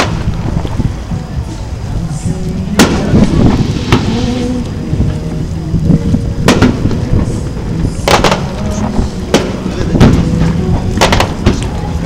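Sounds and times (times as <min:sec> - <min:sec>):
low rumble: 0:00.0 - 0:12.0
firework shells bursting: 0:08.0 - 0:11.8.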